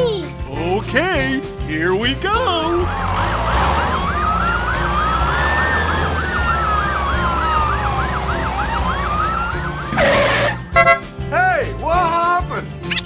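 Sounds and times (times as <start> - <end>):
siren fast yelp: 2.8 - 10.6
siren slow wail: 2.9 - 10.5.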